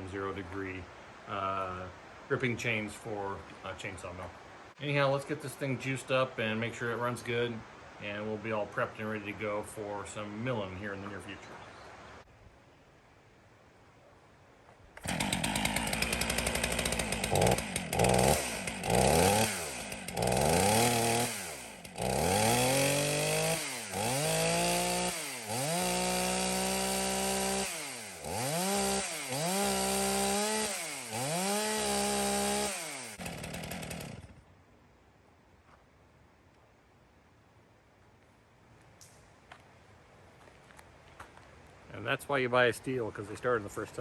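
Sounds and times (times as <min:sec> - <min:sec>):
chainsaw starting and revving: 0:15.0 - 0:34.4.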